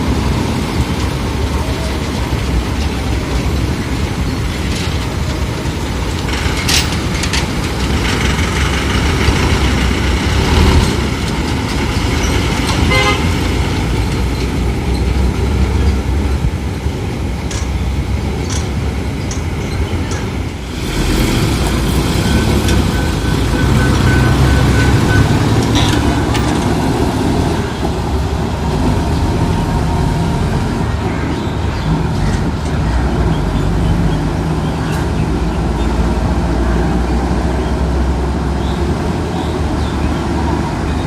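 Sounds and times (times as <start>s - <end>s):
diesel truck engine running: 0.0s - 41.0s
road traffic: 0.0s - 41.0s
truck horn toot: 12.8s - 13.4s, 22.2s - 26.3s.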